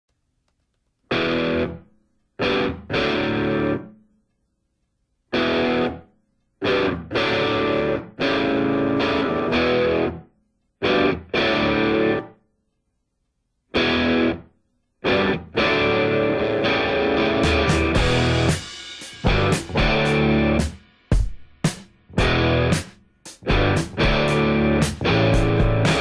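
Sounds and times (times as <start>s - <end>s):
distorted electric guitar chord stabs: 1.1s - 1.8s, 2.4s - 3.9s, 5.4s - 6.0s, 6.6s - 10.2s, 10.8s - 12.3s, 13.8s - 14.4s, 15.0s - 20.7s, 22.1s - 26.0s.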